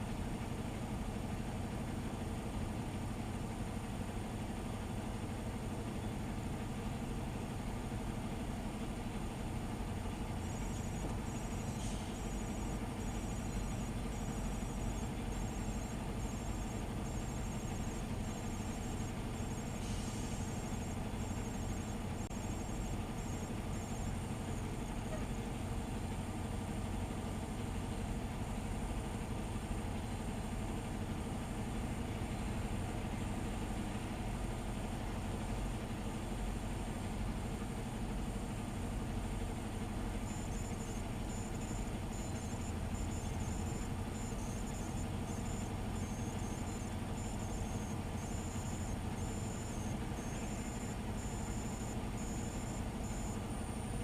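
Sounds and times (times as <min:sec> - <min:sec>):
truck engine idling: 0:00.2 - 0:37.2, 0:38.4 - 0:54.0
high-pitched beeps: 0:10.4 - 0:25.3, 0:40.2 - 0:53.8.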